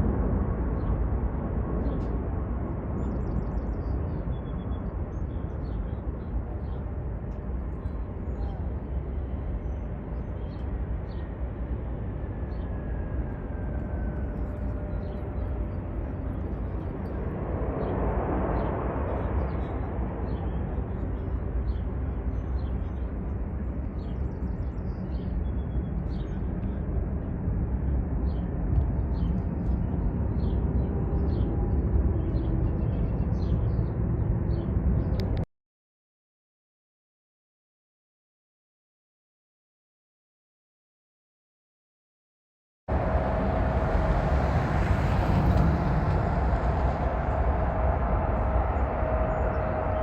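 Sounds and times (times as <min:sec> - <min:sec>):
distant jet airliner taking off: 0:06.0 - 0:24.2, 0:42.9 - 0:50.0.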